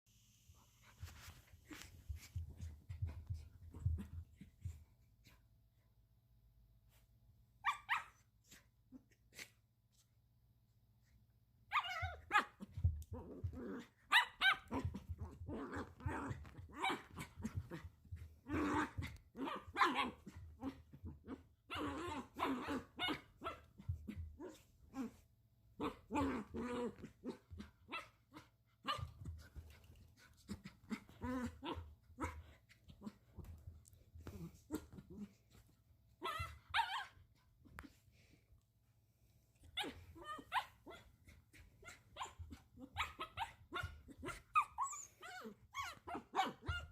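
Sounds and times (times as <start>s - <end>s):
puppy barking and growling: 11.7s - 29.8s, 30.5s - 37.3s, 39.6s - 46.9s.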